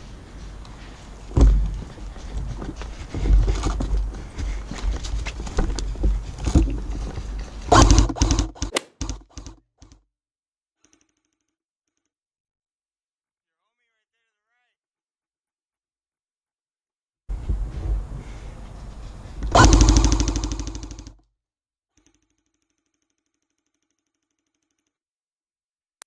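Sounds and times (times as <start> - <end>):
handling and movement rumble: 0.0 - 9.5, 17.3 - 21.1
sharp clicks and knocks: 4.8 - 10.0.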